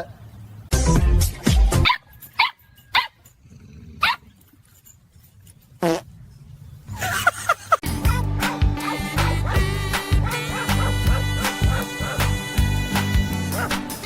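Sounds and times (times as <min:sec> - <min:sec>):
dog barking: 0:10.2 - 0:12.3, 0:13.6 - 0:13.8.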